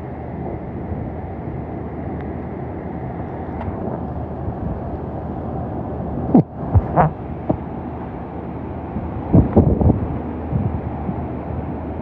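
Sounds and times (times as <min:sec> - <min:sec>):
strong wind rushing: 0:08.9 - 0:11.3.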